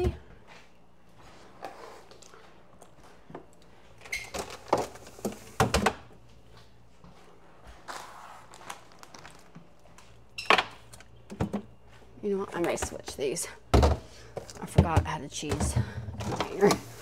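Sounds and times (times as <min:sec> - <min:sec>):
food containers knocking on shelves: 0:13.7 - 0:16.5.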